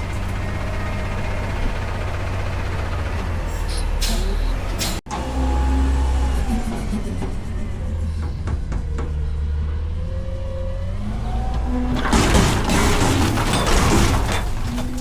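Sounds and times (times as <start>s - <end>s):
diesel truck engine running: 0.0s - 15.0s
trash tumbling into hopper: 11.9s - 15.0s.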